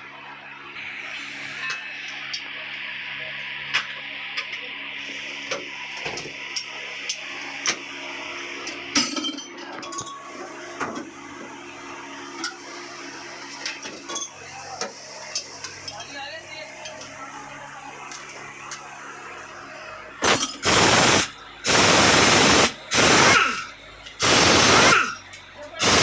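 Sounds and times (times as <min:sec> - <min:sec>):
steady hiss: 0:20.2 - 0:23.6, 0:24.2 - 0:25.2, 0:25.8 - 0:26.0.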